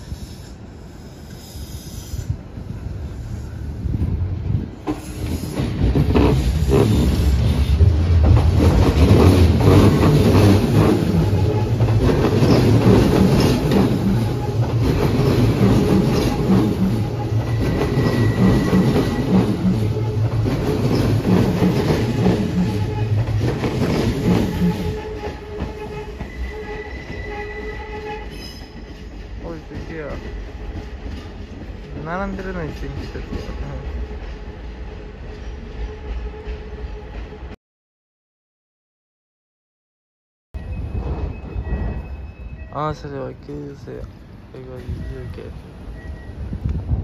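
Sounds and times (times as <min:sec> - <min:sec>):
train wheels clattering over rail joints: 0:04.8 - 0:26.4
high wheel squeal: 0:16.0 - 0:20.2, 0:24.2 - 0:29.1, 0:40.6 - 0:43.0.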